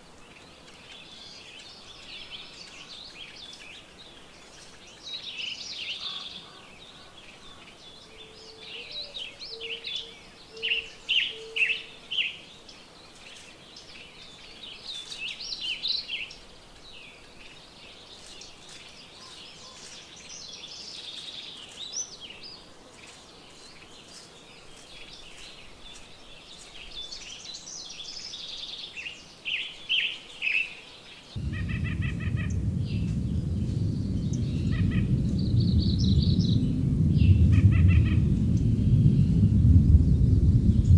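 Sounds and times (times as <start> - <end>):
songbirds singing and chirping: 0.0 - 40.9
low rushing noise: 31.4 - 40.9.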